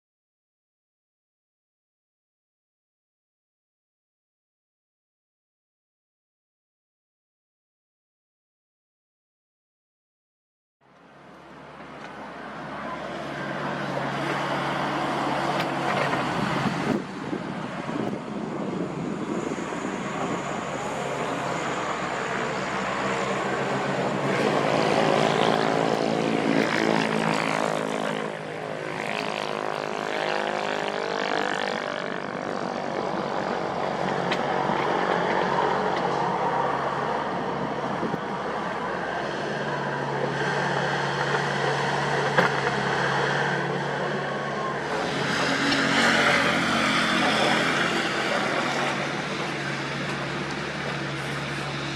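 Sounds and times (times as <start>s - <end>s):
diesel engines running: 10.9s - 51.9s.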